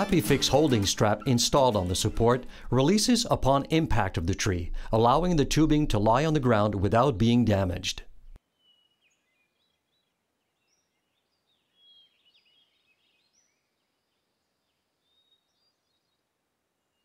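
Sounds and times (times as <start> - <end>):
faint bird chirps and whistles: 8.5 - 14.4.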